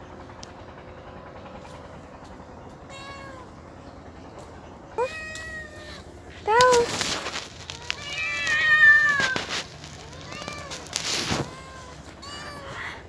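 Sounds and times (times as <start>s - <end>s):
cat meowing: 2.9s - 3.5s, 5.0s - 13.0s.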